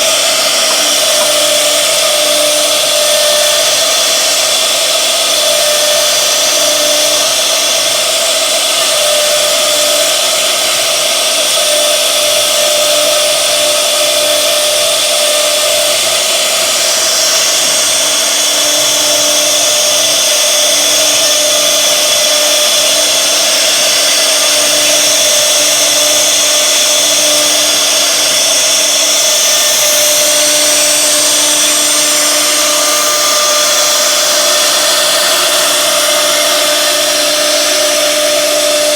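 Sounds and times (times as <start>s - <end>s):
router spindle whining: 0.0s - 38.9s.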